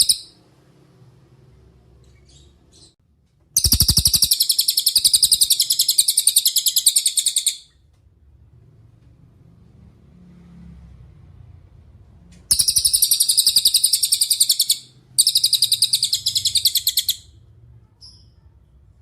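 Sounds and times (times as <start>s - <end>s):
rapid high-pitched bird trills: 0.0s - 0.4s, 3.6s - 7.8s, 12.5s - 17.4s.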